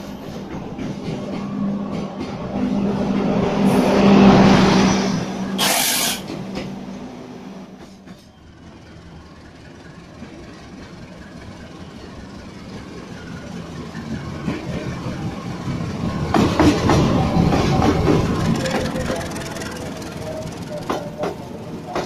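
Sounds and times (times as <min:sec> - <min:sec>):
train rumble: 0:00.0 - 0:22.0
wheels clacking on rail joints: 0:12.8 - 0:22.0.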